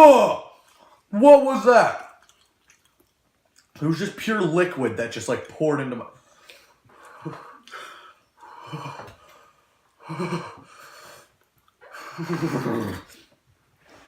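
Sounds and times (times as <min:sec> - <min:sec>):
person gasping and breathing hard: 0:06.5 - 0:13.2
voiced groan: 0:11.8 - 0:13.2.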